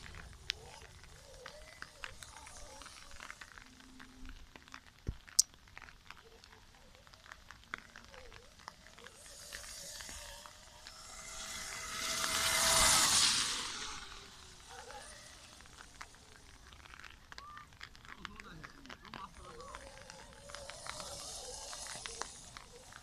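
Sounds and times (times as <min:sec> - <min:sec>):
tyre noise: 0:00.0 - 0:23.0
electric motorbike motor whine: 0:07.7 - 0:17.1, 0:19.2 - 0:23.0.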